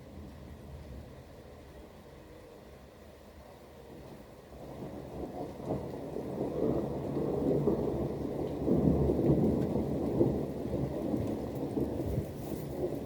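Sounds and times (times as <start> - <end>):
rain: 0.0 - 13.0
rolling thunder: 4.5 - 13.0.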